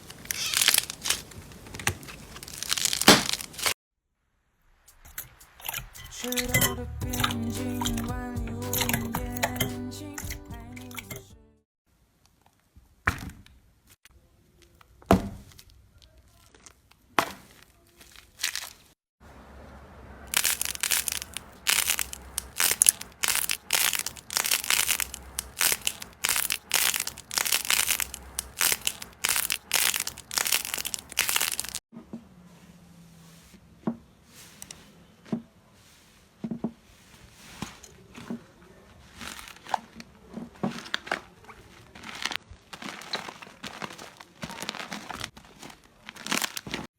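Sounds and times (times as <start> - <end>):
slime crackling with clicks: 20.3 - 31.8.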